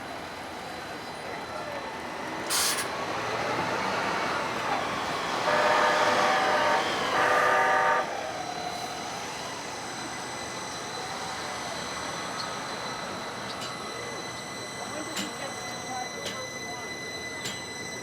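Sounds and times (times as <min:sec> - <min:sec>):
rail running noise: 0:00.0 - 0:18.0
streetcar horn chord blasts: 0:05.4 - 0:08.1.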